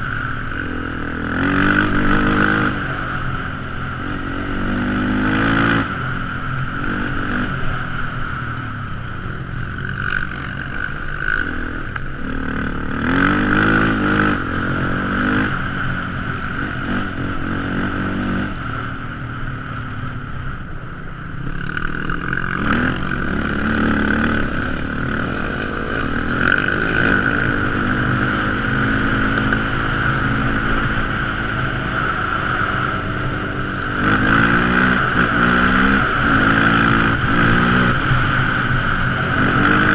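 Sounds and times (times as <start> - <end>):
quad engine revving: 0.0 - 5.9, 9.8 - 15.8, 21.5 - 39.9
steady high whine: 0.0 - 39.9.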